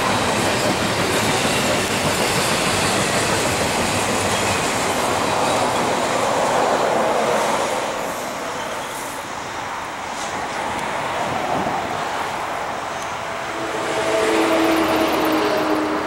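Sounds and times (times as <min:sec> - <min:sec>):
steel wheels clattering on rails: 0:00.0 - 0:09.3.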